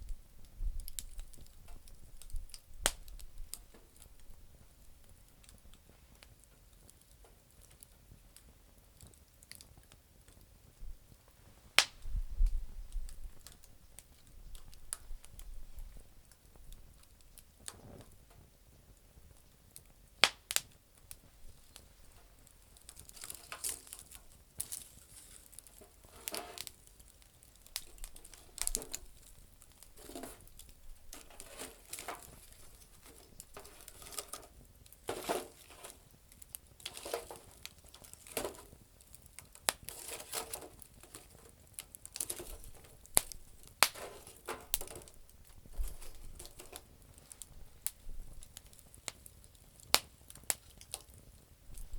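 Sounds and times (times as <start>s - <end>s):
campfire crackling: 0.0s - 51.9s
sharp wood snaps: 2.2s - 3.8s, 11.8s - 12.6s, 20.2s - 21.8s, 22.8s - 34.5s, 39.4s - 51.8s.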